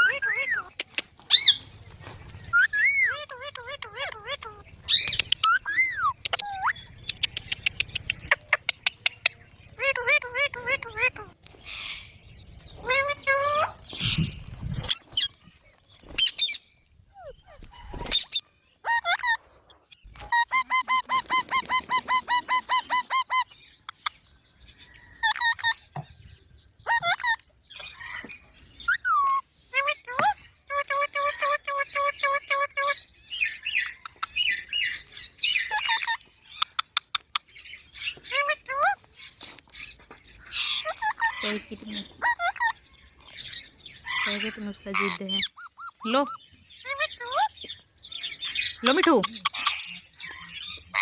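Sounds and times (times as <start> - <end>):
parrot chirping and screeching: 0.0 - 1.7, 2.4 - 15.4, 16.1 - 24.2, 25.0 - 26.0, 26.7 - 51.0
sharp clicks: 7.0 - 9.2.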